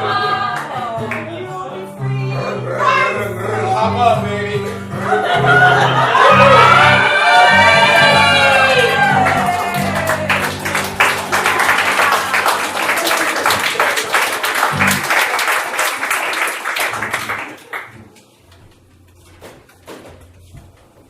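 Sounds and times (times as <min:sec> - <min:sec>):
audience applauding: 0:05.9 - 0:18.2
band playing final chord: 0:08.2 - 0:15.2.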